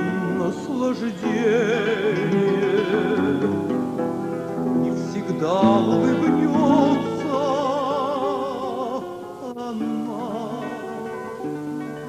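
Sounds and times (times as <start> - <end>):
woman singing with vibrato: 0.0 - 4.0
instrumental accompaniment: 0.0 - 12.0.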